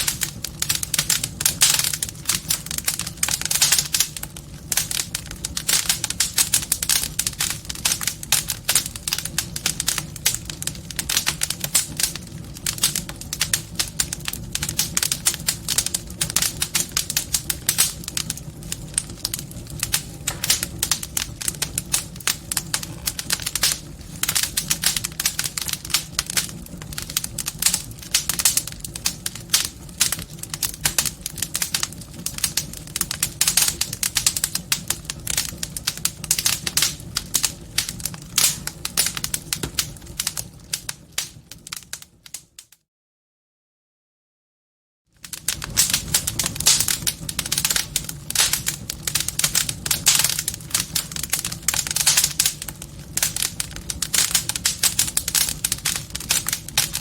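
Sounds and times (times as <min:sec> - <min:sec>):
low rumble of flame: 0:00.0 - 0:42.7, 0:45.2 - 0:57.0
wood fire crackling: 0:00.0 - 0:42.7, 0:45.2 - 0:57.0.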